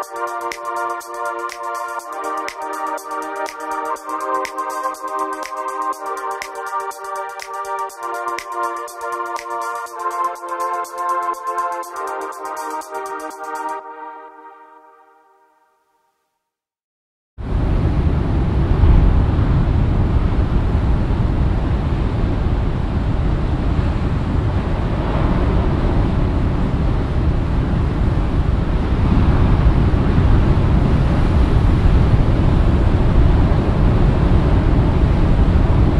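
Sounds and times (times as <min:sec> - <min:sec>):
wind buffeting microphone: 0:17.5 - 0:35.9.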